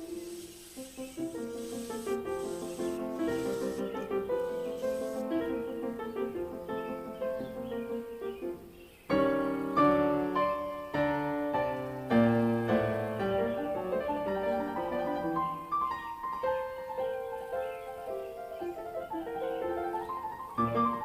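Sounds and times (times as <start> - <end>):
piano music: 9.1 - 21.0.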